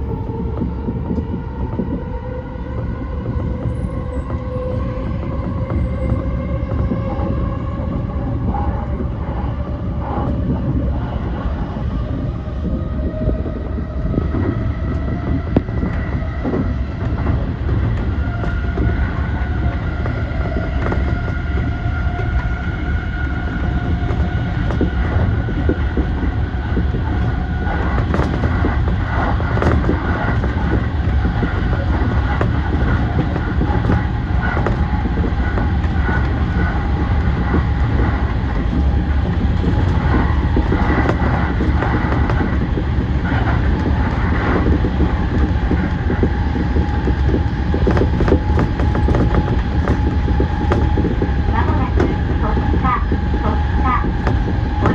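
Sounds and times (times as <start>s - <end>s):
electric train rumble and whine: 0.0s - 54.9s
wheel clicks over rails: 14.3s - 54.9s.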